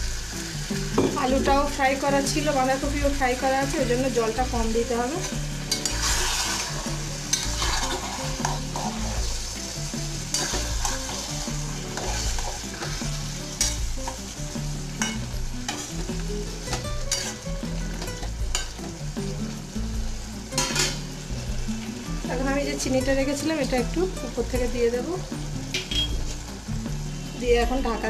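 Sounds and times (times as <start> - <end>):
curry sizzling in oil: 0.0 - 28.0
metal spatula scraping pan: 5.2 - 9.4, 10.2 - 14.2, 16.7 - 17.5.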